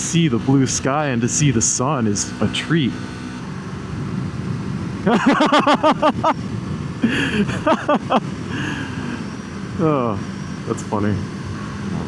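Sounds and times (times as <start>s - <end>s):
motorcycle engine drone: 0.0s - 12.0s
person laughing: 5.1s - 6.4s, 7.0s - 9.0s.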